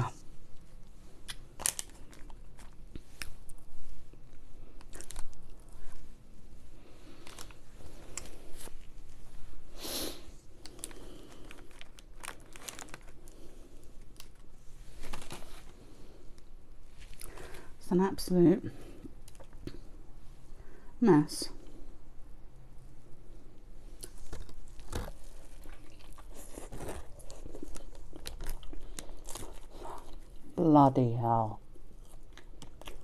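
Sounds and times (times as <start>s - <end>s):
person chewing a burger: 0.1s - 17.7s, 23.6s - 30.6s, 31.6s - 33.0s
paper crinkling: 1.6s - 3.6s, 4.8s - 6.0s, 7.0s - 9.2s, 10.6s - 15.9s.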